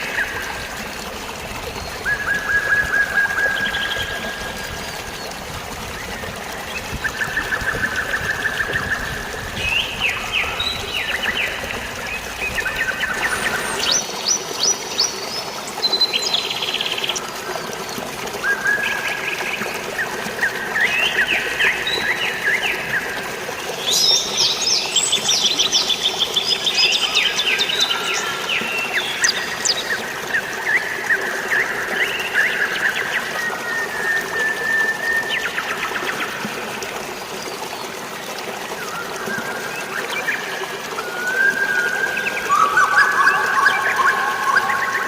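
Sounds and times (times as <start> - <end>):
songbirds trilling and chirping: 0.0 - 38.0
flowing water: 0.0 - 45.0.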